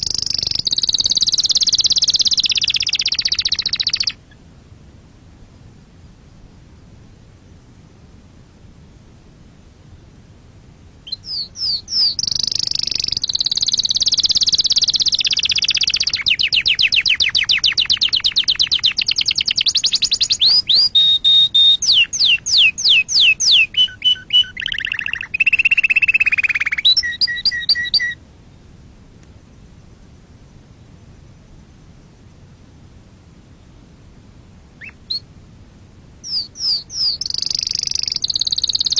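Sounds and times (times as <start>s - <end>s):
canary singing: 0.0s - 4.4s, 11.0s - 28.2s, 34.8s - 35.3s, 36.2s - 38.9s.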